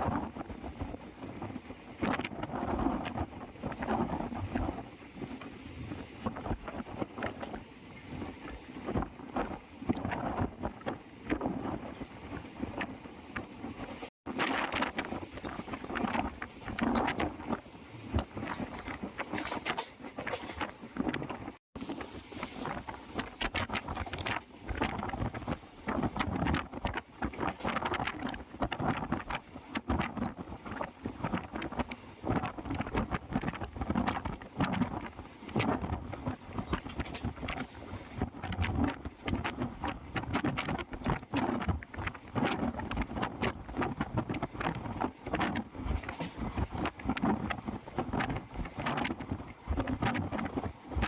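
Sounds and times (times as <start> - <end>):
train rumbling and clattering: 0.0 - 51.0.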